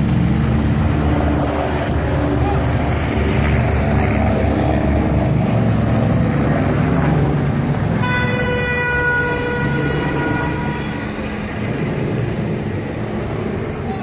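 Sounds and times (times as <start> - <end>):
vehicle engines rumbling: 0.0 - 14.0
vehicle horn: 8.0 - 11.5.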